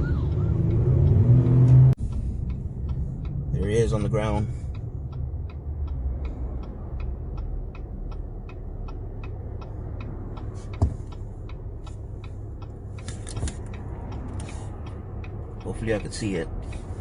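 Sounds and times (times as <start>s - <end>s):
low car cabin rumble: 0.0s - 17.0s
car indicator clicking: 0.2s - 17.0s.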